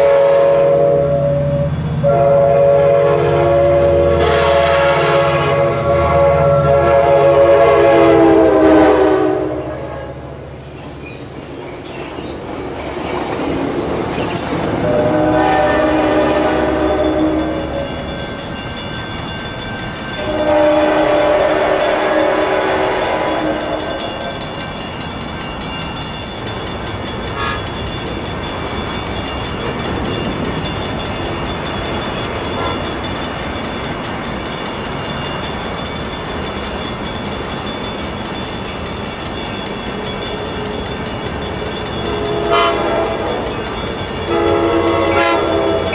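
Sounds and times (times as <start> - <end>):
locomotive air horn blasts: 0.0 - 10.3, 14.8 - 18.0, 20.2 - 24.4, 27.4 - 27.7, 42.1 - 43.5, 44.3 - 45.9
train rolling on rails: 0.0 - 45.9
train wheel clicks: 10.0 - 45.9.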